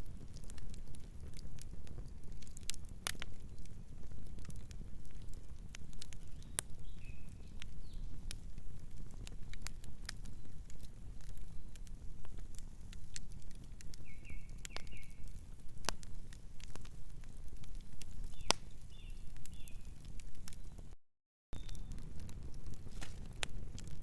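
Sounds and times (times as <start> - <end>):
wood fire crackling and popping: 0.0 - 21.0, 21.6 - 24.0
distant bird chirping: 21.6 - 21.9.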